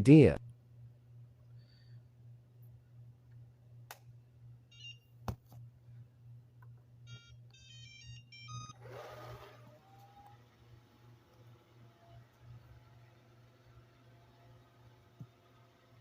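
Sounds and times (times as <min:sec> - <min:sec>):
faint low hum: 0:00.0 - 0:16.0
electronic beeping melody: 0:07.1 - 0:08.8
robot vacuum starting up: 0:08.5 - 0:15.8.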